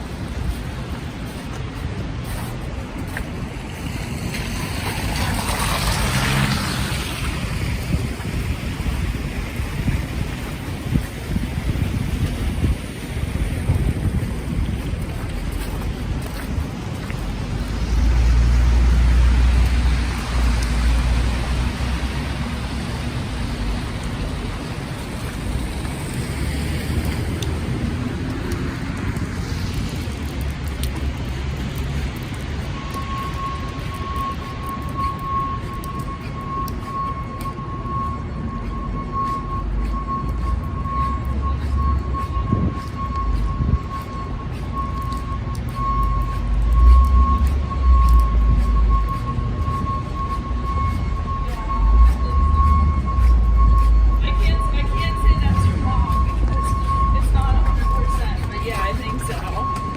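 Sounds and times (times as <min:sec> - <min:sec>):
vehicle engine rumble: 0:00.0 - 0:59.9
steady high-pitched tone: 0:32.9 - 0:59.9.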